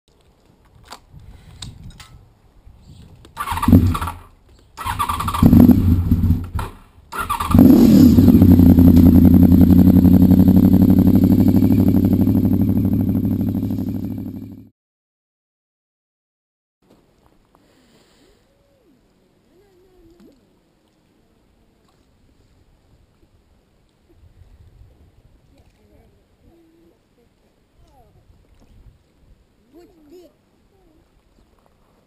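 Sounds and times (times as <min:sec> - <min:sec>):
motorcycle engine starting and running: 0:03.4 - 0:14.7.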